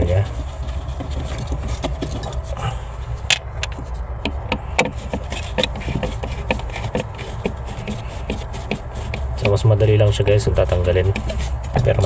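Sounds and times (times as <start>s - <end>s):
steady low hum: 0.0s - 12.0s
clicks and taps on plastic and metal: 3.3s - 9.7s, 10.6s - 12.0s.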